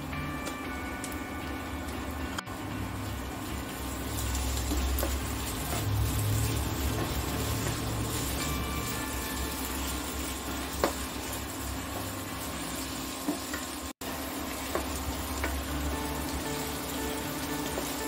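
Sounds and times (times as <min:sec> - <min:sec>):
onions sizzling in oil: 0:02.0 - 0:18.0
spatula knocking on pan: 0:10.7 - 0:11.1.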